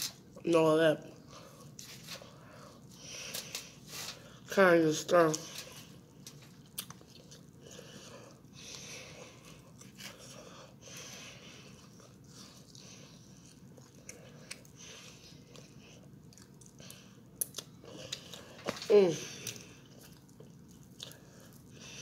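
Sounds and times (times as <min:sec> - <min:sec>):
faint chewing and biting: 0:05.1 - 0:22.0.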